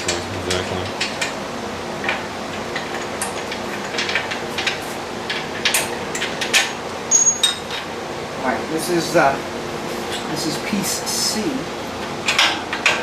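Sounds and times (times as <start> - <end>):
steady low hum: 0.0 - 1.9.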